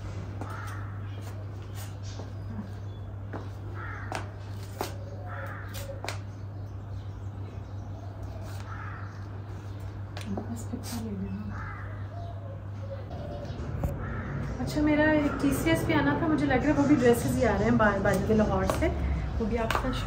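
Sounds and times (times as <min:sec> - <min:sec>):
steady low hum: 0:00.0 - 0:20.0
bird rough calls: 0:00.4 - 0:06.2, 0:08.0 - 0:09.8, 0:11.5 - 0:14.6.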